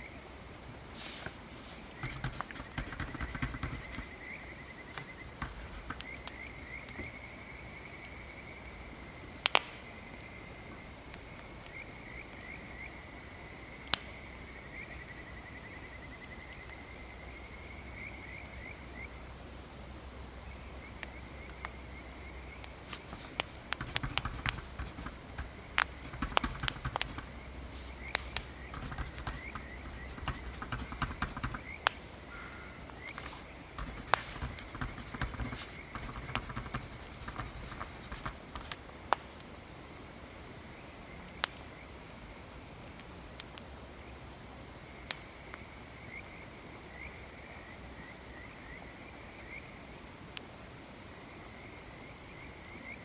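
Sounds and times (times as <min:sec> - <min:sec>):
light scratching and tapping: 0:01.0 - 0:07.2, 0:22.6 - 0:39.4
insect chirring: 0:01.6 - 0:10.8, 0:21.1 - 0:38.9
bonfire crackling and popping: 0:09.4 - 0:12.5, 0:22.6 - 0:35.2.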